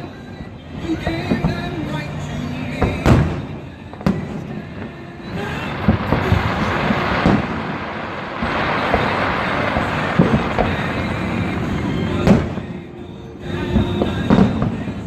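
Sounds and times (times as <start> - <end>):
fireworks crackling: 2.4 - 15.0
firework bangs: 2.7 - 15.0
deep firework booms: 5.3 - 12.8.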